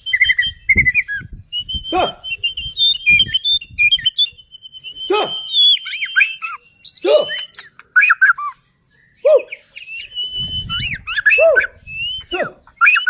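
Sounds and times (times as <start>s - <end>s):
bird singing whistled notes: 0.0s - 13.0s
low knocks: 10.3s - 11.3s.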